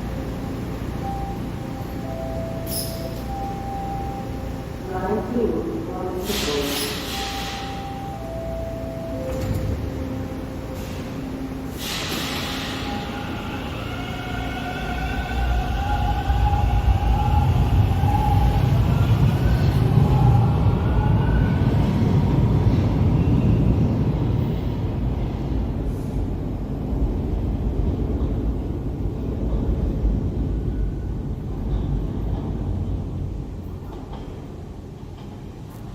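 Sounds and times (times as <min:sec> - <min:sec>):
subway train motors whining: 0:00.0 - 0:35.9
train wheels rumbling: 0:00.0 - 0:35.9
air brake hiss: 0:06.2 - 0:08.0, 0:10.7 - 0:13.9.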